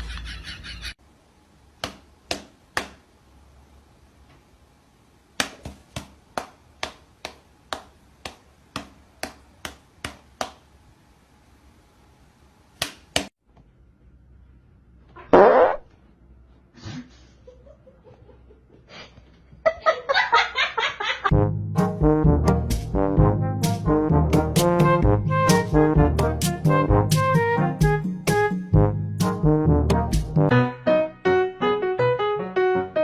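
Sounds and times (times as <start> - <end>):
short fart-like noise: 15.2 - 15.9
rapid brassy tones: 21.3 - 30.5.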